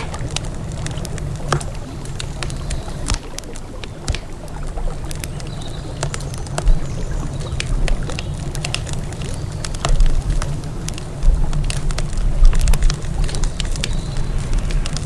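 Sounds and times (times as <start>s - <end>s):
campfire crackling: 0.0s - 15.0s
steady low rumble: 6.5s - 15.0s.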